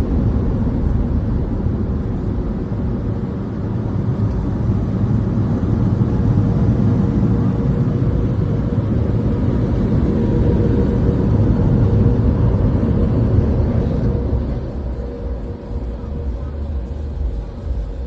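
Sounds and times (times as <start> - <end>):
car wash machinery rumbling: 0.0 - 18.0
faint steady hum: 0.0 - 18.0.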